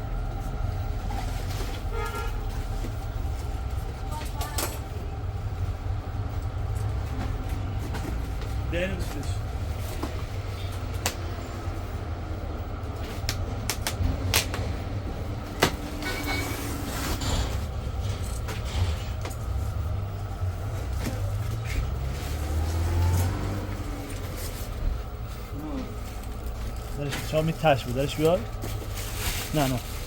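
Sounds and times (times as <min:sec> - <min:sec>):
low vehicle rumble: 0:00.0 - 0:30.0.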